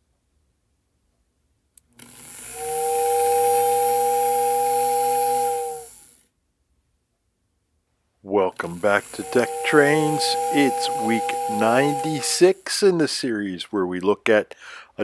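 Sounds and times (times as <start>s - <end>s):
small electric motor winding: 1.8s - 6.3s, 8.5s - 13.1s
two-note toy whistle blast: 9.2s - 12.5s.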